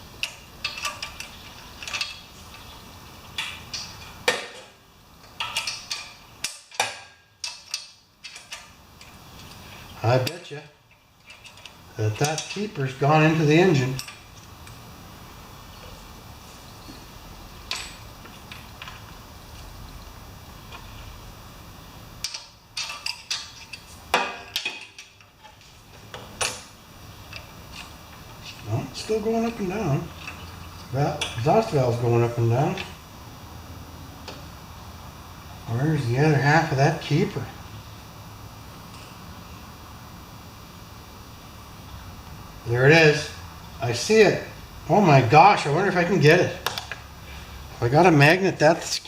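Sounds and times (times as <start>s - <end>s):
metal tools clinking: 0.2s - 2.7s, 3.4s - 14.8s, 17.7s - 19.0s, 22.2s - 25.7s.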